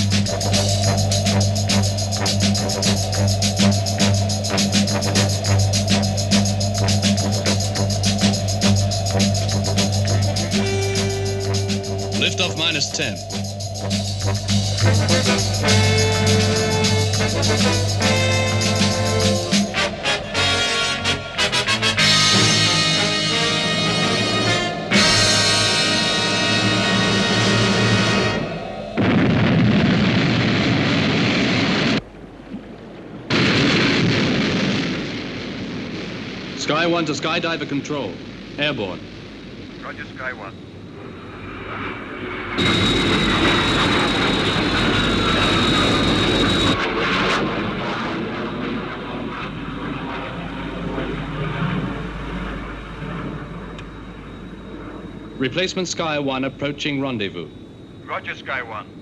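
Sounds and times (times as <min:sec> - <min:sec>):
rocket launch rushing noise: 0:00.0 - 0:32.0
jet engine rumble and hiss: 0:00.0 - 0:59.0.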